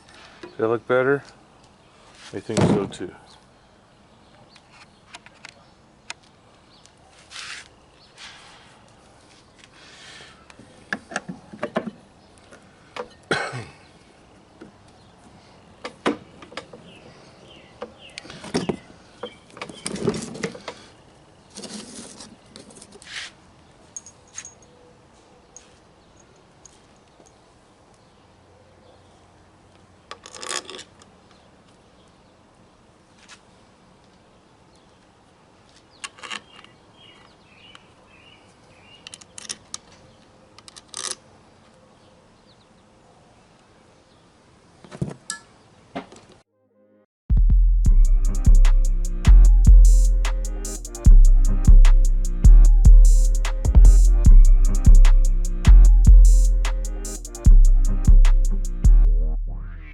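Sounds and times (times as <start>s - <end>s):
metal tools and parts clinking: 23.9s - 24.8s, 30.1s - 31.1s.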